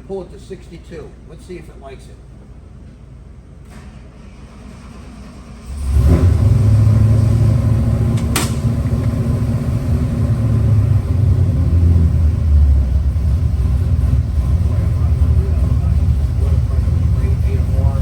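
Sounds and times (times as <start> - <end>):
engine running at full power: 5.6 - 18.0
sharp crack: 8.1 - 8.8.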